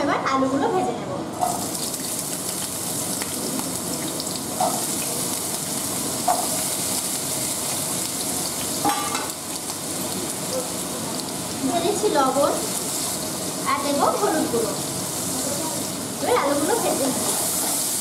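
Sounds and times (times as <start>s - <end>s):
potatoes sizzling in oil: 1.4s - 18.0s.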